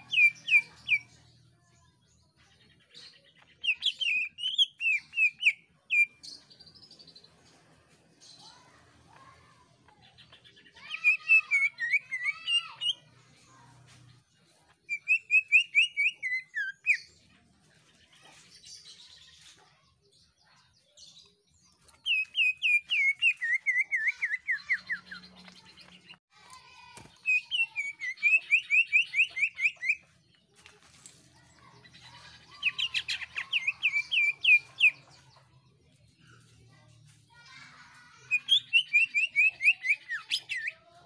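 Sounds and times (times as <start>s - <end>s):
bird song with sharp repeated notes: 0.0s - 41.0s.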